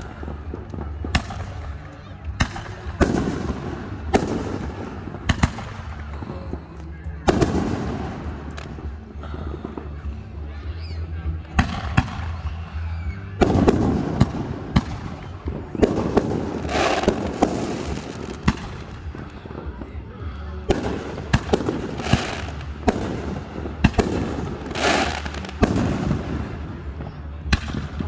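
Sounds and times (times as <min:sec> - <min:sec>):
fireworks bangs: 0:00.0 - 0:06.2, 0:07.2 - 0:09.0, 0:13.4 - 0:19.9, 0:20.7 - 0:28.0.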